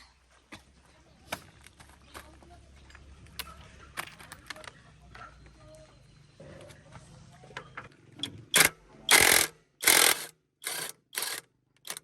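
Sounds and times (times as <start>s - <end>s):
rasping mechanical noise: 8.2s - 12.0s.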